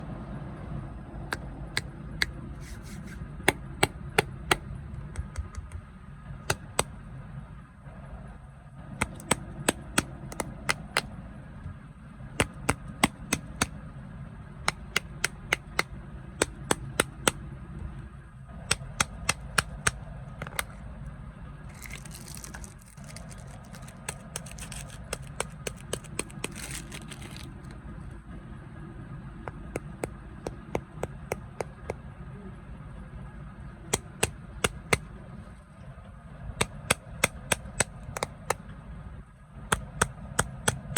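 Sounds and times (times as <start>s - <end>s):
steady low hum: 0.0s - 40.9s
crunchy snacks crackling: 21.7s - 27.8s
packaging crinkling: 21.7s - 27.8s.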